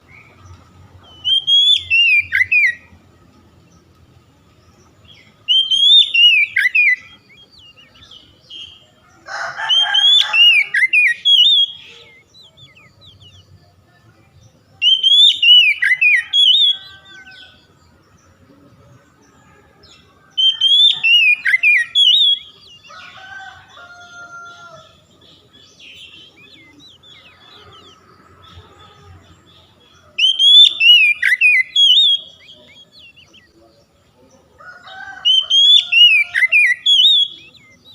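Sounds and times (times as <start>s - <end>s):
bird singing whistled phrase: 5.5s - 7.3s, 10.6s - 13.4s, 14.8s - 16.9s, 30.2s - 33.2s, 35.3s - 37.8s.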